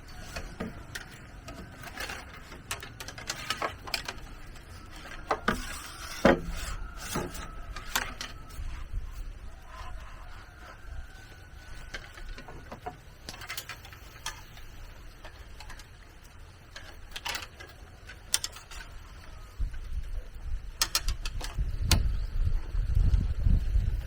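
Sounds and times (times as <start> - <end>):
wind rumble on microphone: 4.2 - 12.9, 18.8 - 24.0.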